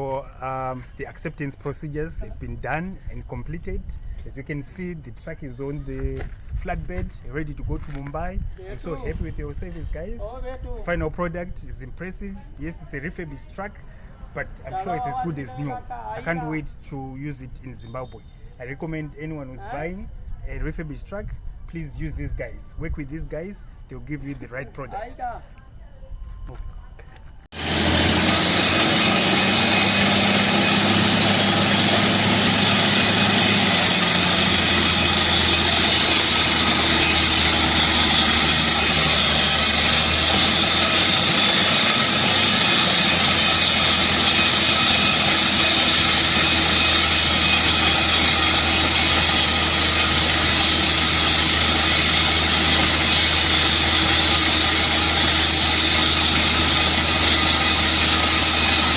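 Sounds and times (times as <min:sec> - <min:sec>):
drilling rig machinery running: 0:27.5 - 0:58.9.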